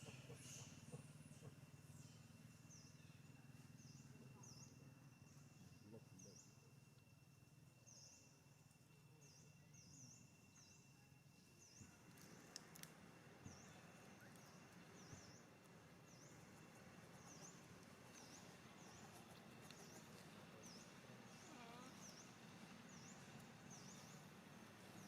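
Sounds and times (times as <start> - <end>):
small bird calling: 20.7 - 24.2.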